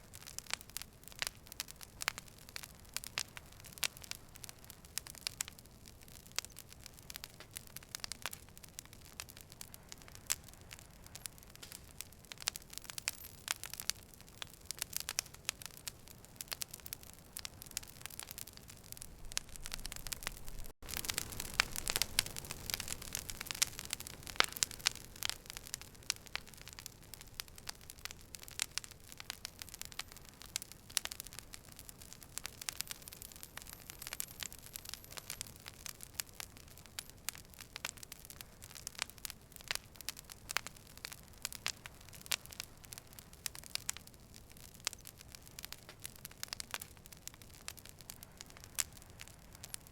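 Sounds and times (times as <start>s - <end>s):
campfire crackling and popping: 0.0s - 49.9s.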